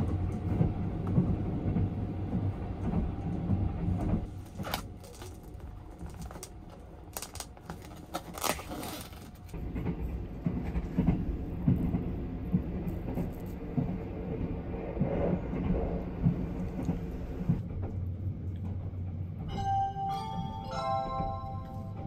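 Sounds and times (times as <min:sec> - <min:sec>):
train rumbling with knocks: 0:00.0 - 0:04.7, 0:09.3 - 0:22.0
music: 0:19.5 - 0:22.0.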